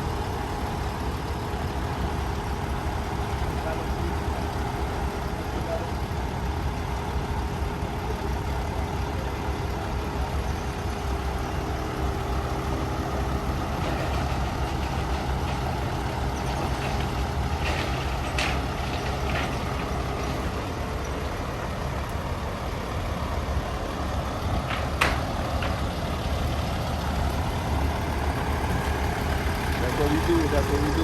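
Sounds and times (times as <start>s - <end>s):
diesel truck engine running: 0.0s - 31.0s.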